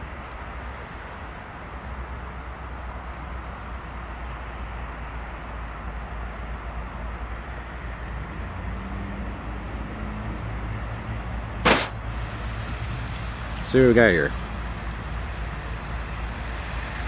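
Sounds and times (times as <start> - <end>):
engine drone: 0.0 - 17.0
locomotive low rumble: 0.0 - 17.0
brief sharp noise: 11.6 - 12.0.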